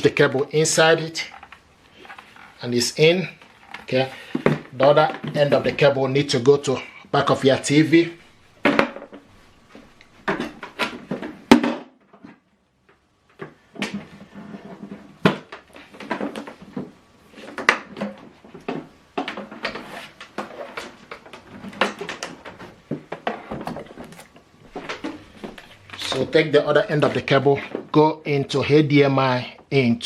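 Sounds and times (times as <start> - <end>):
cable handling clicks and rustles: 0.0 - 6.0, 12.0 - 28.1.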